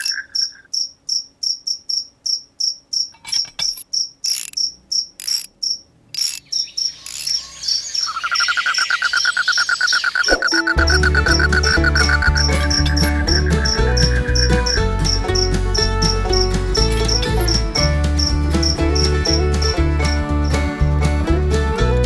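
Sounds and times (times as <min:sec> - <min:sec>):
insects chirping: 0:00.0 - 0:19.8
lower fast insect trill: 0:03.9 - 0:10.8.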